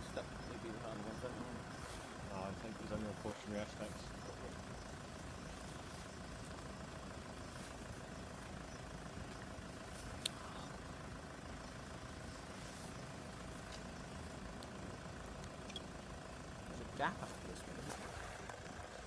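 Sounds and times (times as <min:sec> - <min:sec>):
engine idling: 0:00.0 - 0:19.0
faint steady hum: 0:00.0 - 0:19.0.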